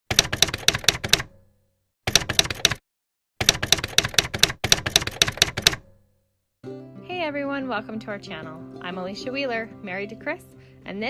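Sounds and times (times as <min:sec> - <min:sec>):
typewriter keys clacking: 0:00.1 - 0:01.3, 0:02.1 - 0:02.8, 0:03.4 - 0:05.9.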